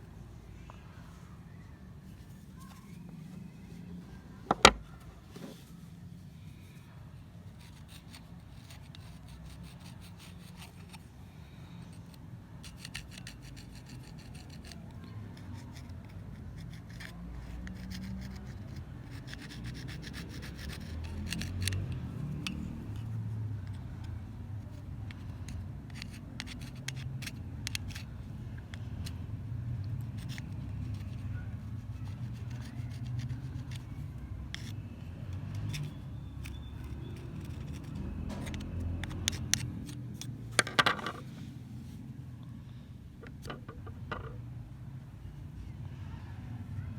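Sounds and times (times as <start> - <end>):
small clicks and scratches: 7.5 - 41.4, 43.2 - 44.4
hand scraping rusty pliers: 7.6 - 11.1, 11.8 - 29.2, 29.9 - 41.4.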